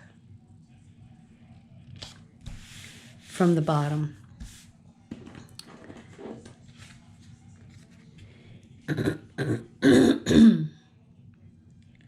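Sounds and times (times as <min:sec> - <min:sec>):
woman clearing her throat: 0:08.9 - 0:10.8
woman coughing: 0:08.9 - 0:10.8.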